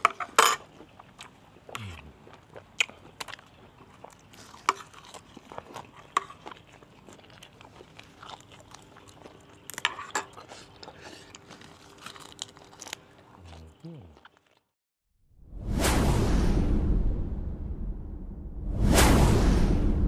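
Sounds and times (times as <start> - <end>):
person chewing food: 0.0 - 14.8.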